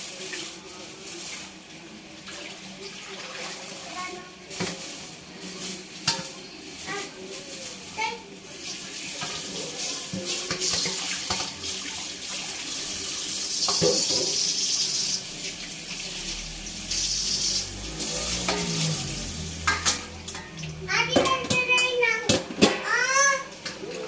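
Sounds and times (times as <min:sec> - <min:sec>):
tap water running into sink: 0:08.6 - 0:24.0.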